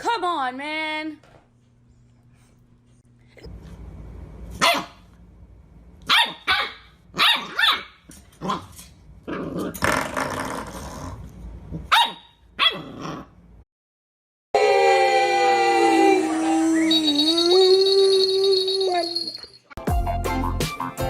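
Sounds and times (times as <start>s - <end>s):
dog barking: 4.6s - 5.0s, 6.1s - 8.6s, 11.9s - 12.9s
dog growling: 9.2s - 11.8s, 12.7s - 13.4s.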